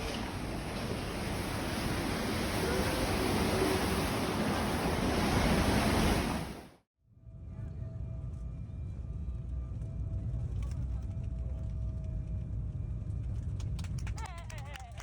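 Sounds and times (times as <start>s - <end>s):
wind gusting over microphone: 0.0s - 6.8s.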